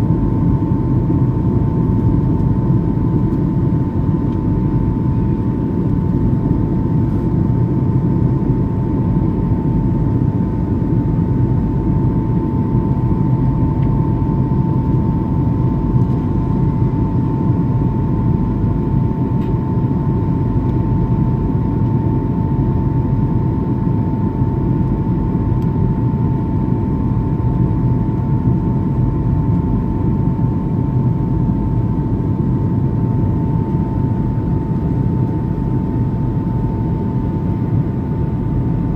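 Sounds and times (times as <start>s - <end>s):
airliner engines rumbling and whining: 0.0s - 38.9s.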